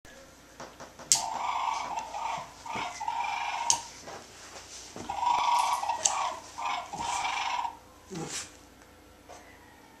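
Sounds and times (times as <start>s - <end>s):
sharp clicks: 1.1s - 1.3s
dog whining and yelping: 5.0s - 8.5s.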